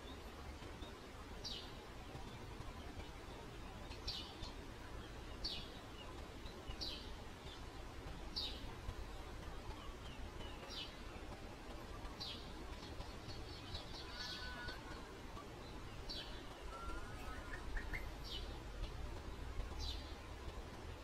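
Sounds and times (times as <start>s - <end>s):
low background rumble: 0.0s - 21.0s
small bird chirping: 11.9s - 20.3s.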